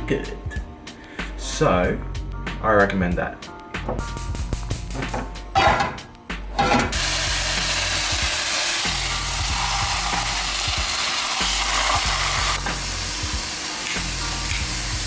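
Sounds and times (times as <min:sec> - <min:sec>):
background music: 0:00.0 - 0:15.0
chicken sizzling in frying: 0:06.9 - 0:15.0.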